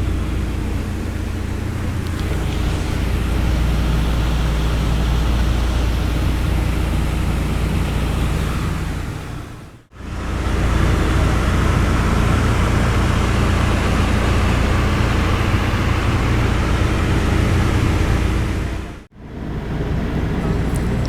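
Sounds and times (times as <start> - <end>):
cabin hiss: 0.0 - 9.7
airplane piston engines droning: 0.0 - 21.0.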